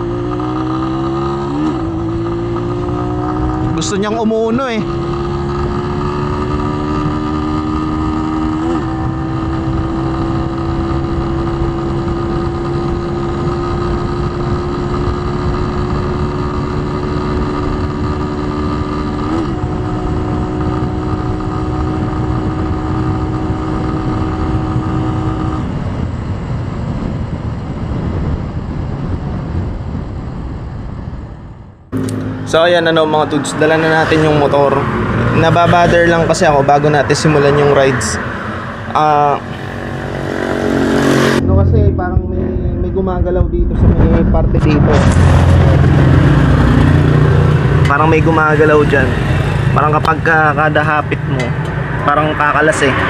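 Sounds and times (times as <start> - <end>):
motorcycle engine at full throttle: 0.0 - 53.0
wind and road noise: 0.0 - 53.0.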